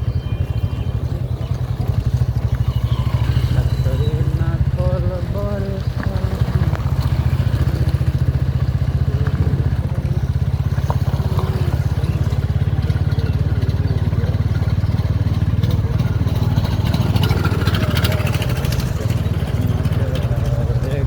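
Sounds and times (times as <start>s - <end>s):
motorcycle engine pulsing: 0.0s - 21.0s.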